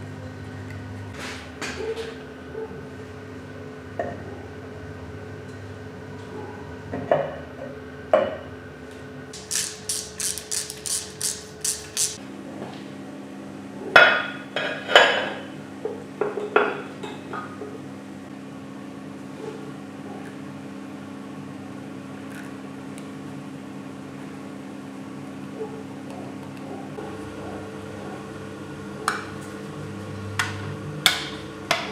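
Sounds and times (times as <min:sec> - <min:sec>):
hand tools striking metal: 0:09.4 - 0:12.2.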